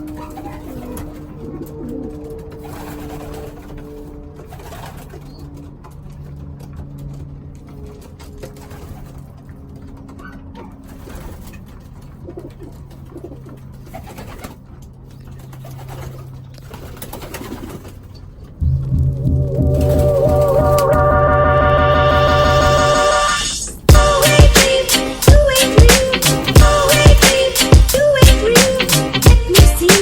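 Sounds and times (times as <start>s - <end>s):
pigeons cooing: 0.0s - 5.8s, 8.1s - 18.6s
loud music: 18.6s - 30.0s.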